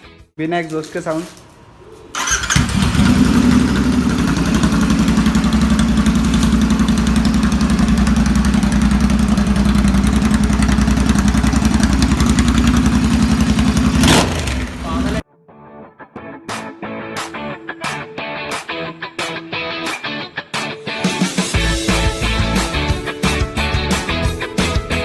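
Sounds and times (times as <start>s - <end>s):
motorcycle engine idling: 1.4s - 15.2s.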